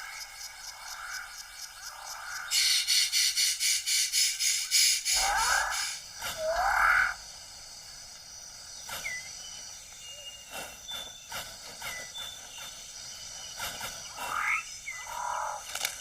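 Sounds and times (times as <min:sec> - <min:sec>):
loud animal call rising in pitch: 0:05.2 - 0:07.2.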